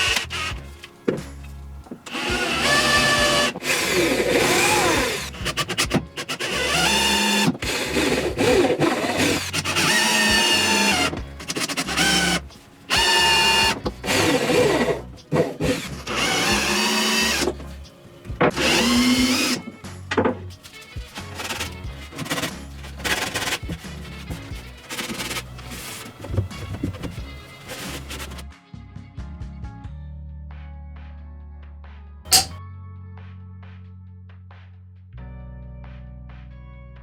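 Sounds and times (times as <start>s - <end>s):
power drill whining: 0.0s - 28.4s, 32.3s - 32.6s
background music: 0.0s - 37.0s.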